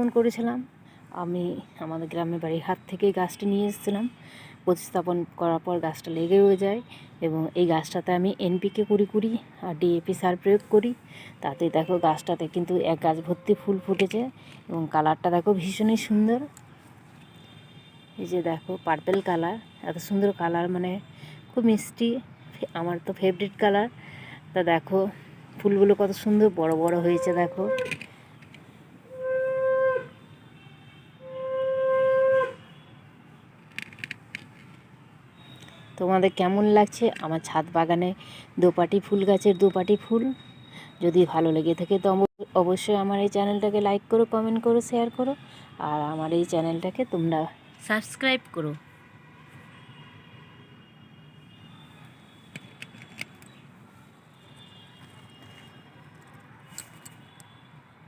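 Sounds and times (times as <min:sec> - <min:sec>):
faint steady background noise: 0:00.0 - 0:58.0
wind instrument long notes: 0:29.1 - 0:30.1, 0:31.2 - 0:32.6
sharp clicks: 0:52.5 - 0:53.6.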